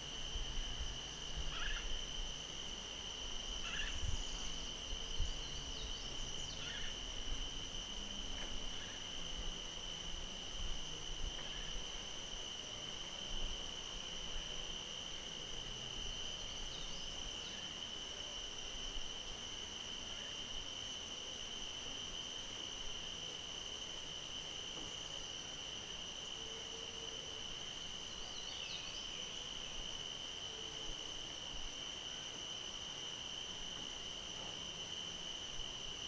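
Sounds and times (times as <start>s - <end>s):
crickets chirring: 0.0s - 36.0s
faint bird calls: 1.5s - 1.9s, 3.6s - 4.0s, 6.5s - 7.0s.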